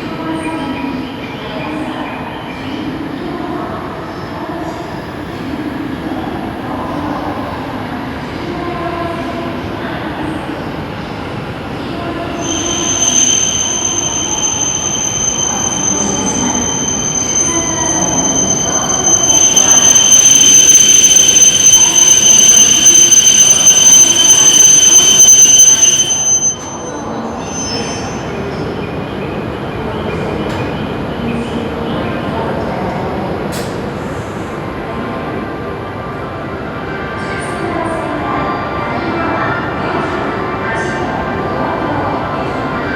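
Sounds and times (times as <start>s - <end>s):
train rushing rumble: 9.6s - 27.5s
high-pitched train wheel squeal: 12.0s - 28.9s.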